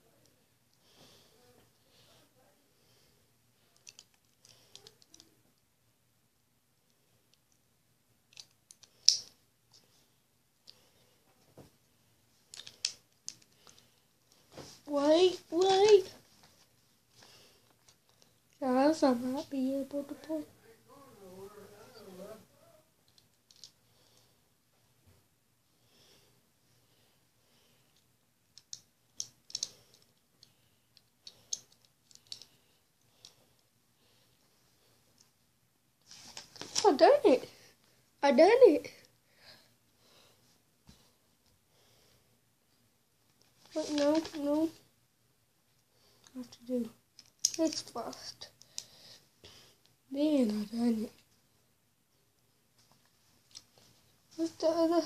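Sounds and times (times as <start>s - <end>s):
toy pieces clicking and snapping: 3.8s - 5.2s, 8.3s - 9.4s, 12.5s - 13.8s, 23.1s - 23.8s, 28.5s - 32.6s, 47.2s - 48.9s.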